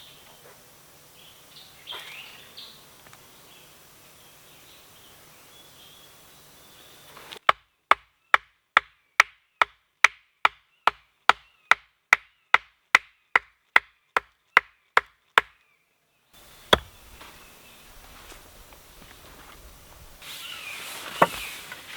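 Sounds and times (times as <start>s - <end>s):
axe chopping wood: 7.4s - 15.6s, 16.4s - 17.4s.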